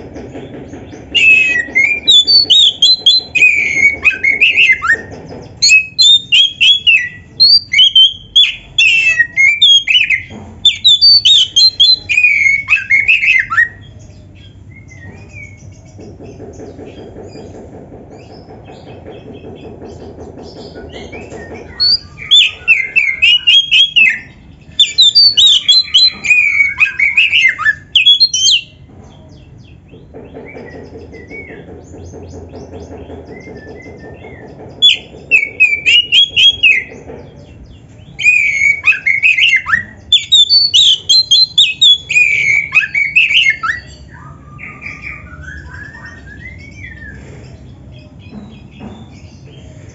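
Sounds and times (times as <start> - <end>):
bird singing whistled phrases: 1.2 - 5.0, 5.6 - 13.8, 21.8 - 28.8, 34.8 - 36.9, 38.2 - 47.2.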